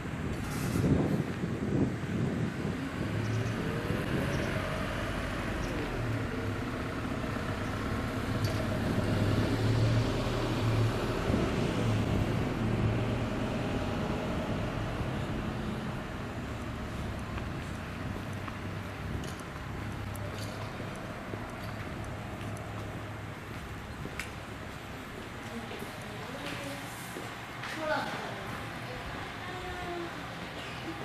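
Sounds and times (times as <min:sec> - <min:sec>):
diesel engine running: 0:02.2 - 0:26.4.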